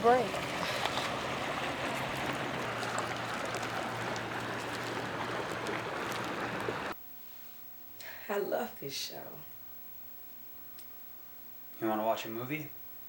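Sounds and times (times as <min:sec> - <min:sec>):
rushing outdoor noise: 0:00.0 - 0:07.0.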